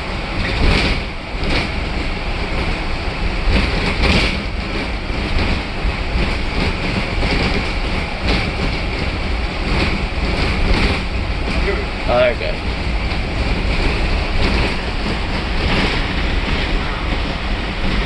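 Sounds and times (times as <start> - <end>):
bus body rattles: 0.0 - 18.0
bus engine and road rumble: 0.0 - 18.0.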